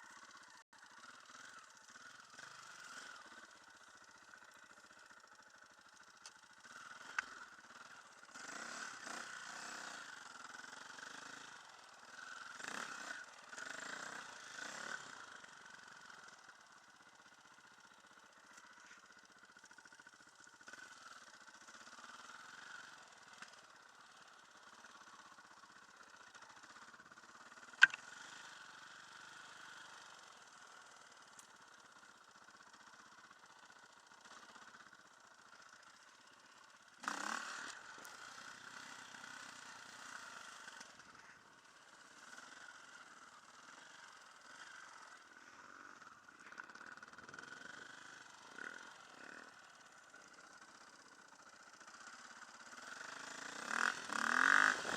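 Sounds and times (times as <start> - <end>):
dirt bike engine running: 0.0 - 54.9
sharp click: 27.8 - 28.1.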